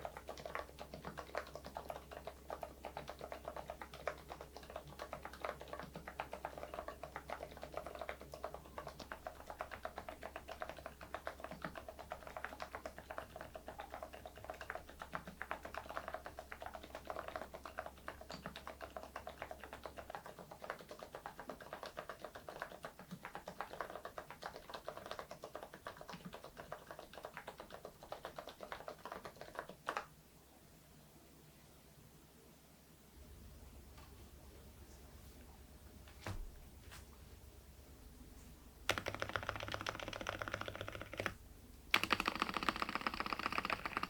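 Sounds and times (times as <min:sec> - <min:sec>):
fast typing on mechanical keyboard: 0:00.0 - 0:30.1, 0:38.9 - 0:44.0.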